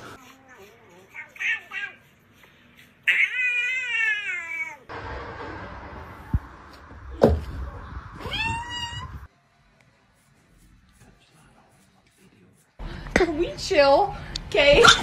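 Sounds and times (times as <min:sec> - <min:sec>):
sharp thump: 0:06.2 - 0:07.9
cat meowing: 0:08.2 - 0:09.3.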